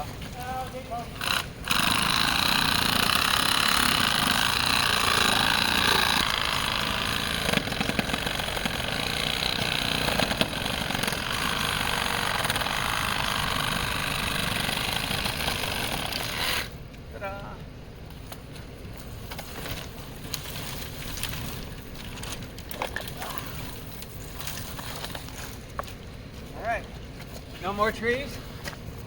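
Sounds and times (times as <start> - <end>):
reciprocating saw cutting wood: 1.1 - 16.8.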